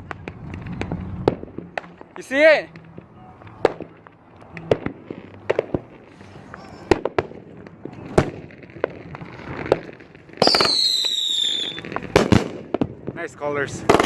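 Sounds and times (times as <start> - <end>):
fireworks pops and bangs: 0.0 - 14.0
firework whistle: 5.5 - 7.2, 10.4 - 12.3.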